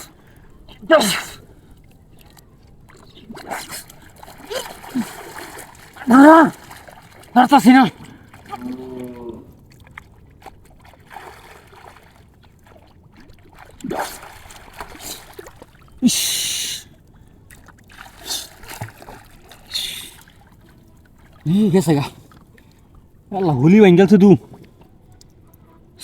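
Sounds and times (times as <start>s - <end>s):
water splashing in a stream: 0.0s - 26.0s
loud splash: 3.3s - 8.8s, 13.2s - 15.7s.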